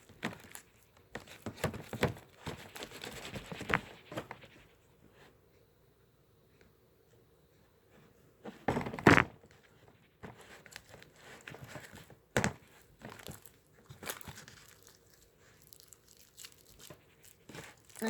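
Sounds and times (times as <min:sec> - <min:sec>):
crinkling and tapping: 0:00.0 - 0:04.6, 0:08.5 - 0:18.0
rustling thump: 0:08.4 - 0:14.5.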